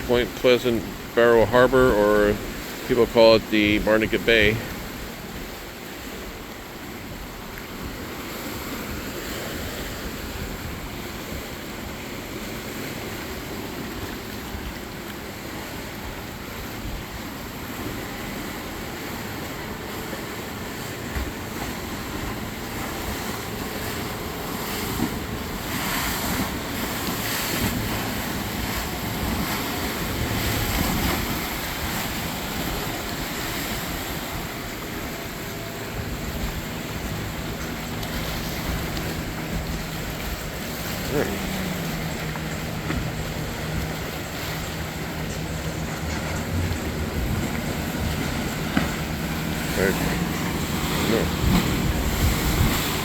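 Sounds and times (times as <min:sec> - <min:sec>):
motorboats running past: 0:00.0 - 0:53.0
water sloshing and splashing: 0:00.0 - 0:53.0
wind buffeting microphone: 0:13.0 - 0:53.0.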